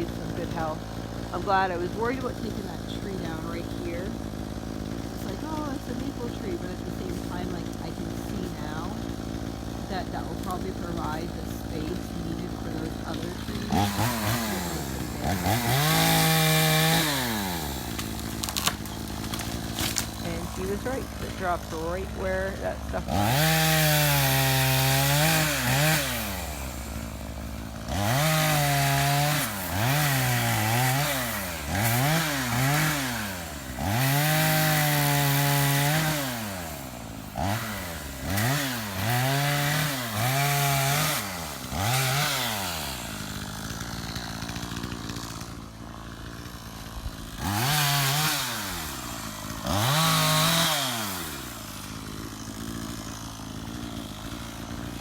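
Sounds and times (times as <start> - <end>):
chainsaw revving: 0.0 - 55.0.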